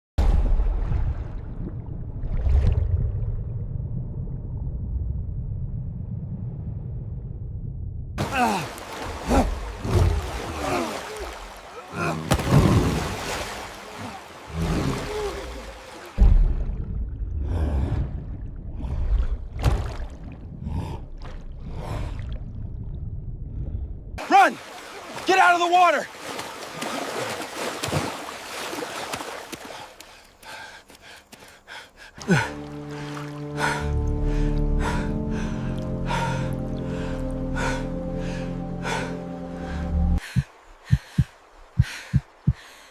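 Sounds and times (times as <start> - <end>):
water sloshing and gurgling: 0.2 - 42.9
steady low rumble: 1.1 - 8.2.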